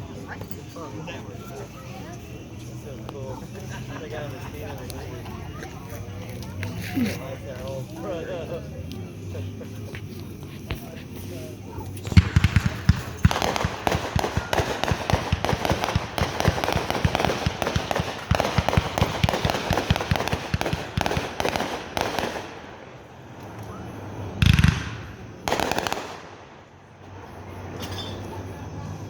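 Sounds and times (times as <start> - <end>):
fireworks crackling: 9.1 - 27.7
firework bangs: 12.0 - 23.5, 24.2 - 26.8.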